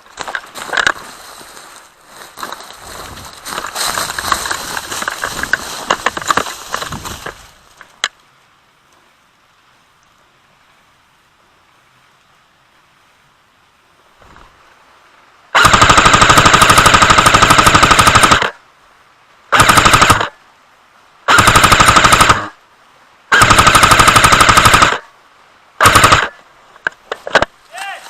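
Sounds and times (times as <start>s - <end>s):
airsoft gun firing bursts: 15.6s - 18.5s, 19.5s - 20.3s, 21.3s - 22.5s, 23.3s - 25.0s, 25.8s - 26.4s.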